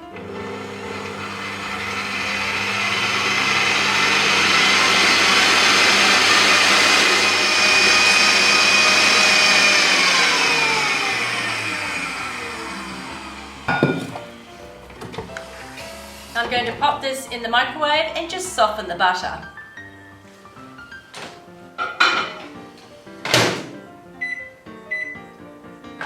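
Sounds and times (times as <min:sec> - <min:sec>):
electric hand mixer whine: 0:00.0 - 0:16.4.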